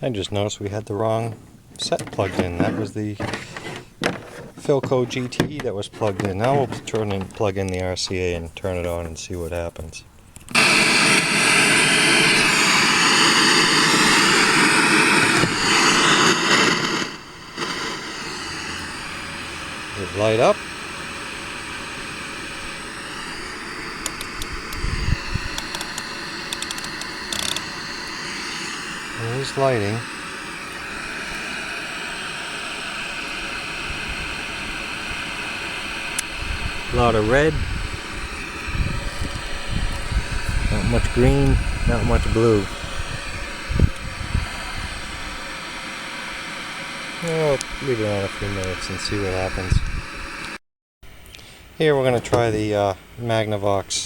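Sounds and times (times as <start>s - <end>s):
television static hiss: 10.6s - 38.3s, 43.4s - 50.5s.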